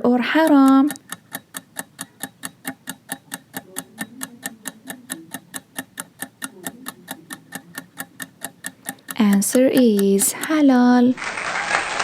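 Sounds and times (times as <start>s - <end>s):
clock-like timer ticks: 0.0s - 11.1s.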